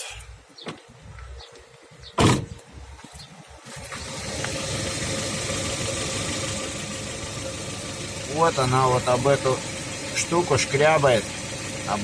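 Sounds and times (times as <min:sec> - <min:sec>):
loud thump: 0:02.2 - 0:02.5
car engine running: 0:03.8 - 0:12.0.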